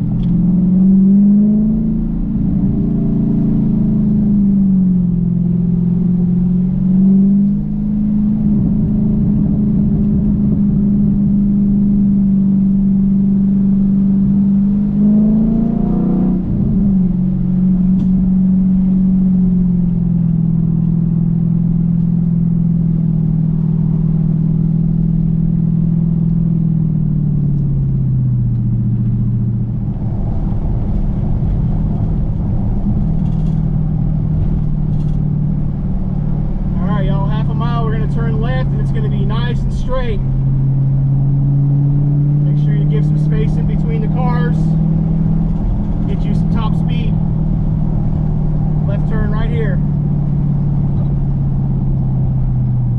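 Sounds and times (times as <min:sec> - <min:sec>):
car engine cruising: 0:00.0 - 0:52.9.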